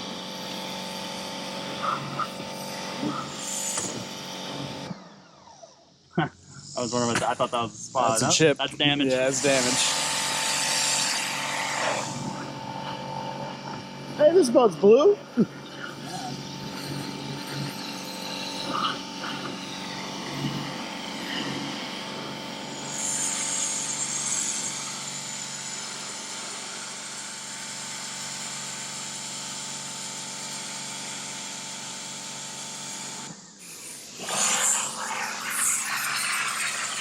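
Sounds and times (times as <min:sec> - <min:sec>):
power tool motor whine: 0:00.0 - 0:37.0.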